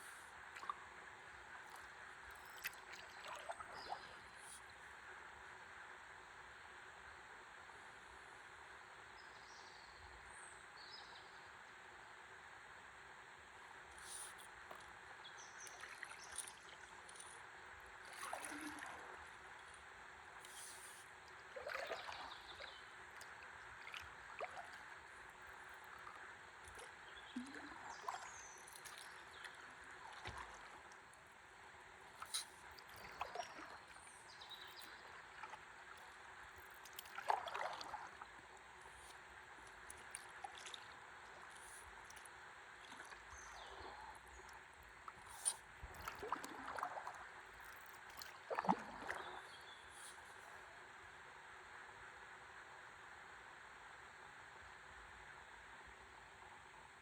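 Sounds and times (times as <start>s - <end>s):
water sloshing and trickling: 1.6s - 4.8s, 13.9s - 50.6s
water splash: 18.1s - 19.1s, 36.9s - 38.1s.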